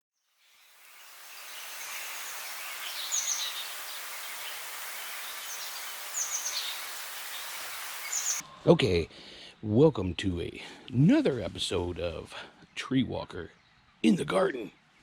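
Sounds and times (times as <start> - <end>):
songbird calling: 0.2 - 8.5
steady high hiss: 0.4 - 8.4.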